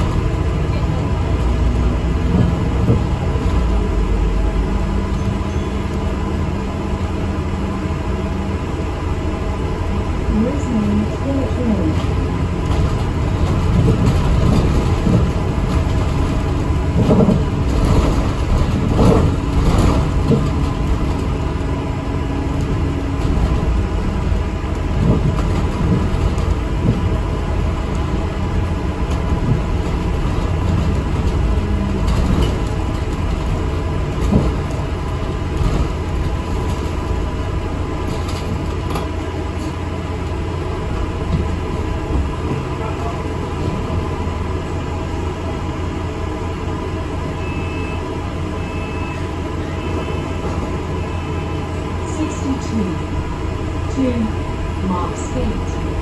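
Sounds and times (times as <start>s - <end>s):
bus engine and road noise: 0.0s - 56.0s
knocks and rattles: 11.9s - 21.7s, 22.5s - 39.7s.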